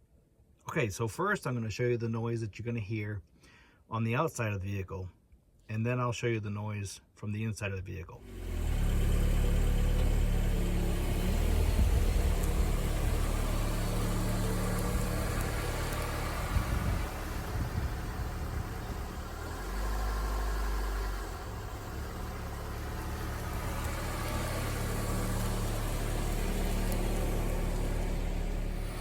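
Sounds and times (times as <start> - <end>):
brake rotor noise: 8.2 - 29.0
car engine running: 8.2 - 29.0.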